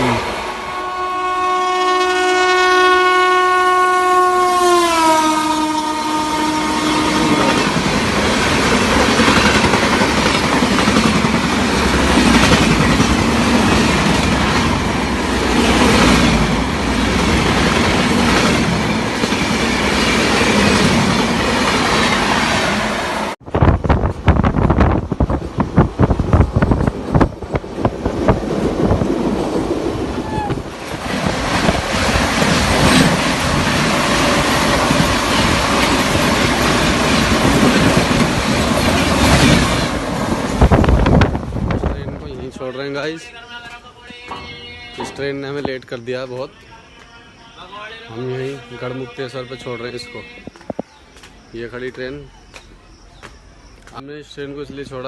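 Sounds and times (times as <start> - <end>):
train wheels rumbling: 6.3 - 47.1.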